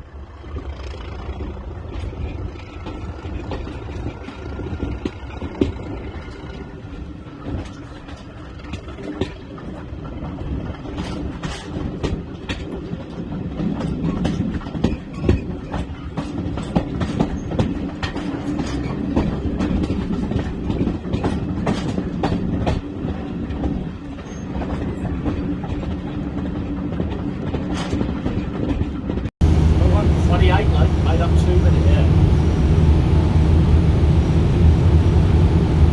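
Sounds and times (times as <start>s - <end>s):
train rumbling: 29.4s - 35.9s.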